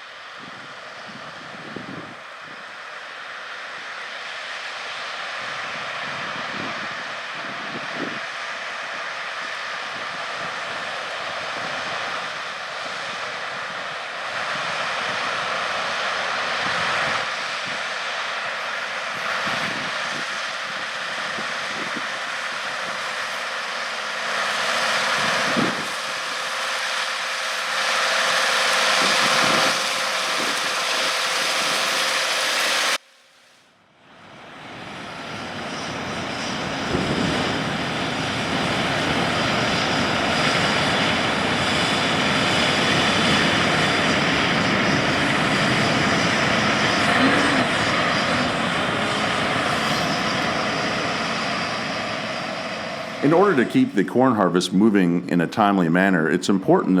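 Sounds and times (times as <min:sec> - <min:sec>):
heavy diesel machinery running: 0:21.7 - 0:33.0, 0:36.1 - 0:53.9.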